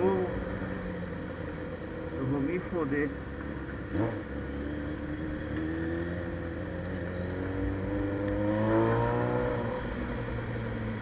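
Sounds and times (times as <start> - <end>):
motorcycle engine revving: 3.1 - 11.0.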